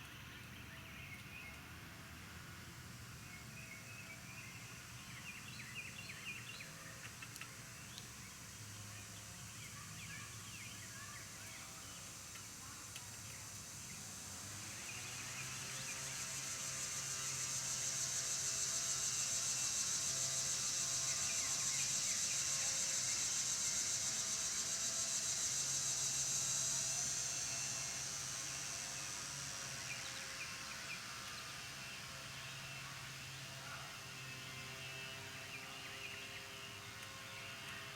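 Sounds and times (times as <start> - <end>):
high steady buzzing drone: 13.7 - 36.9.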